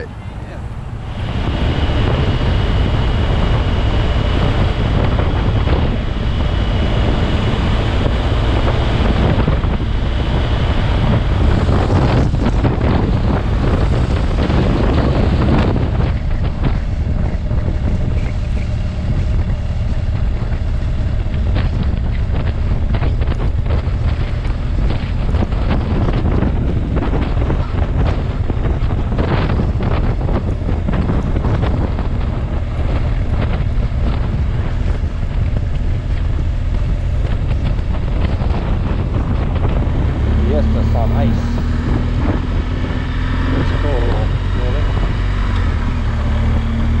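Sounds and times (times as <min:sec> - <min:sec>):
wind rushing over microphone: 0:00.0 - 0:47.0
motorcycle engine running: 0:00.1 - 0:47.0.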